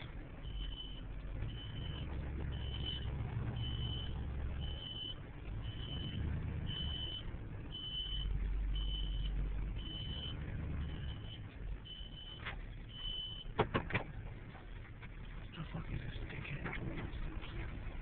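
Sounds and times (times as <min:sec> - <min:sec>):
truck engine rumbling: 0:00.0 - 0:18.0
reversing alarm beeping: 0:00.4 - 0:13.6.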